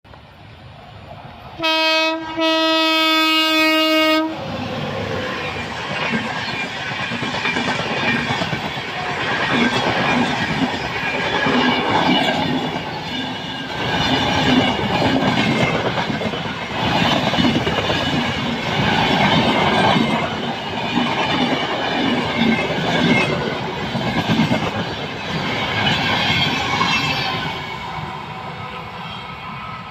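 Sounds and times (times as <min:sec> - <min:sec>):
train coaches rumbling: 0:00.1 - 0:29.9
train wheels clacking on rail joints: 0:05.8 - 0:27.6.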